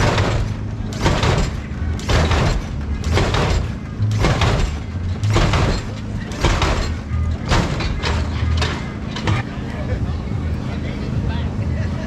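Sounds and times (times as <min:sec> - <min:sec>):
hydraulic pumps firing: 0:00.0 - 0:09.5.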